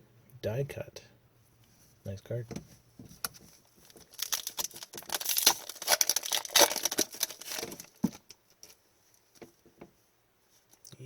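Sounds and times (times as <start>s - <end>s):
foil wrapper crinkling: 3.3s - 8.8s.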